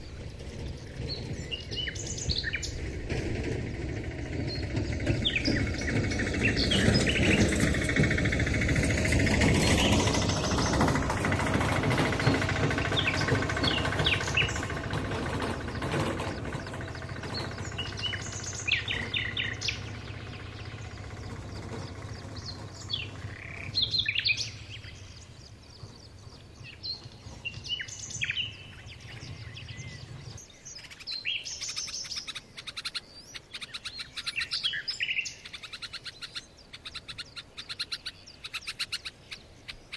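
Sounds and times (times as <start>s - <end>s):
low hum: 0.0s - 30.8s
low background rumble: 0.0s - 39.9s
wild birds chirping: 0.0s - 39.9s.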